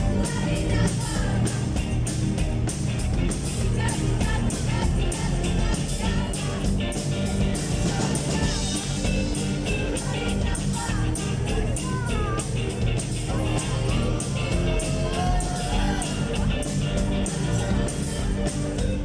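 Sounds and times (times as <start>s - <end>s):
drums keeping a steady beat: 0.0s - 19.0s
guitar: 0.0s - 19.0s
rock band playing live: 0.0s - 19.0s
person singing: 3.8s - 19.0s.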